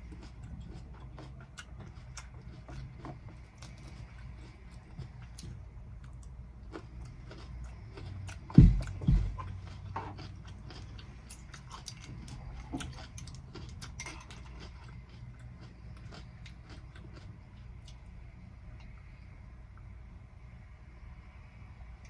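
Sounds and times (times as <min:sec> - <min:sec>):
chewing crunchy salad: 0:00.0 - 0:19.1
heavy low thumps: 0:08.4 - 0:09.7.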